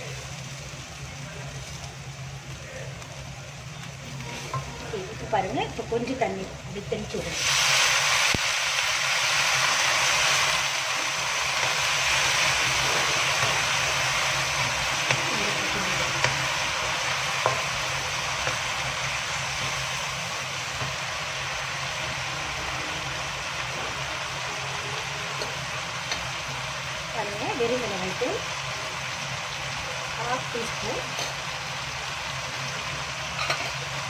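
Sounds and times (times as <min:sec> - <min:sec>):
vegetables sizzling in a wok: 0:00.0 - 0:34.0.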